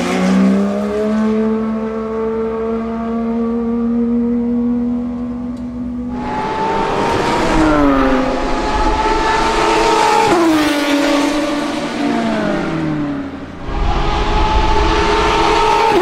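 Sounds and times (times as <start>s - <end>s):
race car engine passing: 5.4s - 16.0s.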